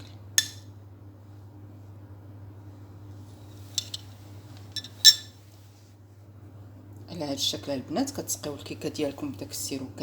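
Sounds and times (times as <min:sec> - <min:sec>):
steady low hum: 0:00.0 - 0:10.0
metal spoon clinking on dish: 0:04.8 - 0:05.3.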